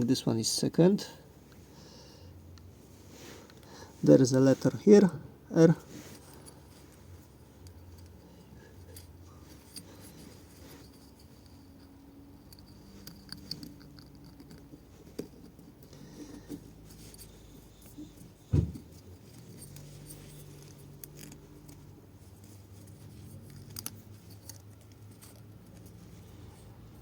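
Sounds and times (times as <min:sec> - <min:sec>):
metallic clicks and rubbing: 0:05.8 - 0:27.0
dull knock: 0:18.5 - 0:18.8.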